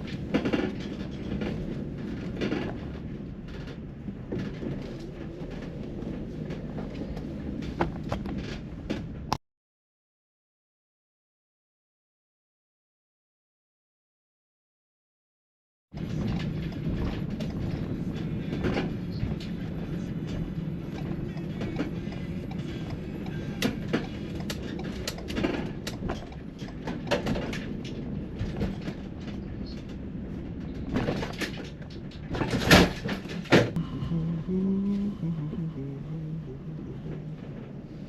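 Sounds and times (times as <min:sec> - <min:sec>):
van engine and road rumble: 0:00.0 - 0:09.3, 0:16.0 - 0:38.0
knocks and rattles: 0:16.0 - 0:33.8.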